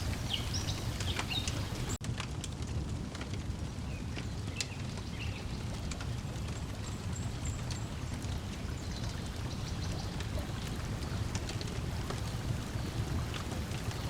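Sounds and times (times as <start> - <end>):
high bird chirps: 0.0 - 2.0
water lapping at shore: 0.0 - 2.0, 6.3 - 14.0
wood fire crackling: 0.0 - 14.0.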